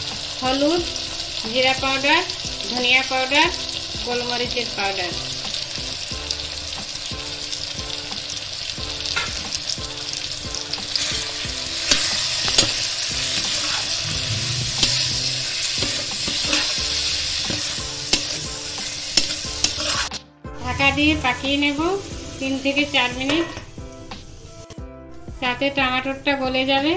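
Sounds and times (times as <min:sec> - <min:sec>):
spices sizzling in hot oil: 0:00.0 - 0:24.8
metal spatula scraping pan: 0:11.0 - 0:23.8.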